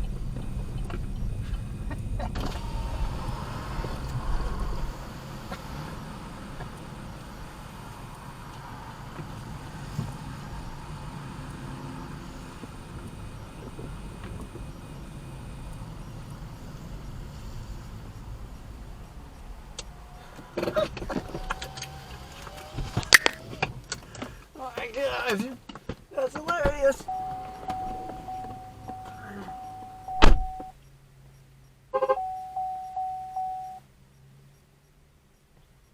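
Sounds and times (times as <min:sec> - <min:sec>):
road noise: 0:00.0 - 0:35.9
vehicle engine rumble: 0:00.0 - 0:35.9
car warning chime dinging: 0:02.0 - 0:03.0, 0:26.2 - 0:31.0, 0:31.9 - 0:33.9
loud thunk: 0:30.2 - 0:30.5.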